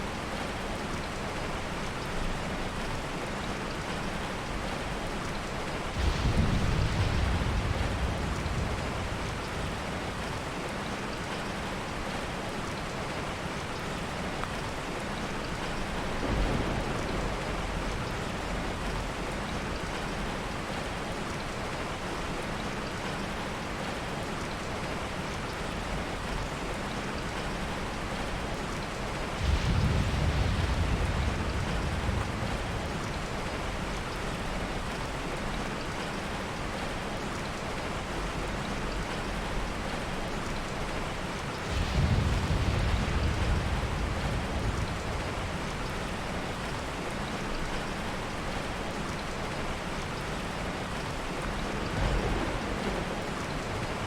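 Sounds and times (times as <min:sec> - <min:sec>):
heavy rain falling: 0:00.0 - 0:54.0
soft thunder rumbling: 0:03.9 - 0:12.2, 0:14.4 - 0:21.8, 0:25.8 - 0:35.6, 0:37.8 - 0:54.0.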